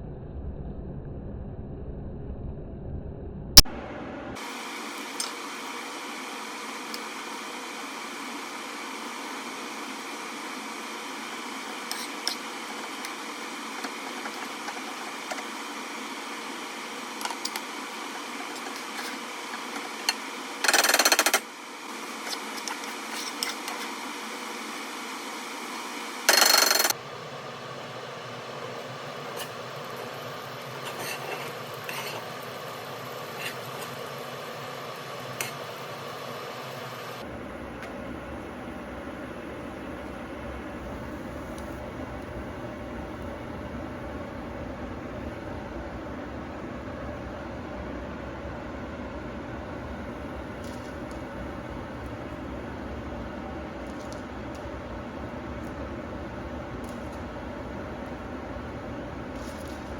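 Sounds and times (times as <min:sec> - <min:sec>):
oil sizzling in a pan: 0:04.4 - 0:26.3, 0:28.1 - 0:37.2.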